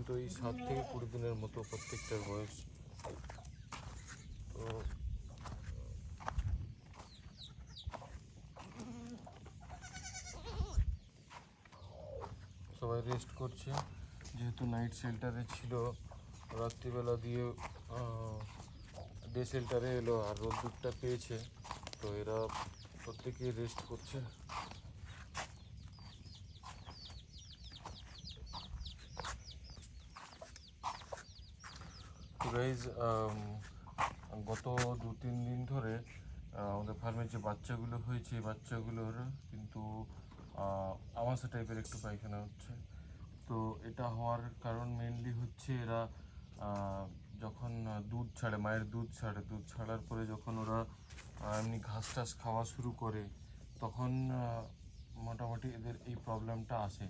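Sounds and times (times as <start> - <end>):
birds chirping: 0.0 - 57.0
goats bleating: 0.2 - 2.6, 8.6 - 10.8.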